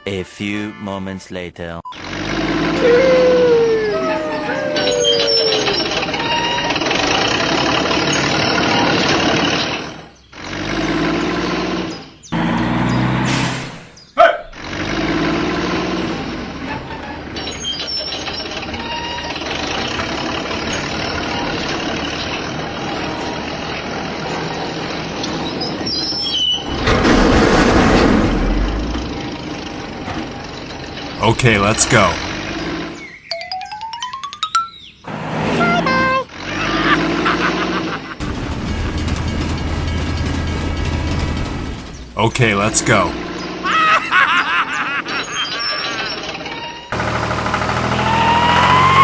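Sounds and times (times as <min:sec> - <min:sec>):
heavy vehicle engines running: 0:01.9 - 0:33.3, 0:34.9 - 0:49.0.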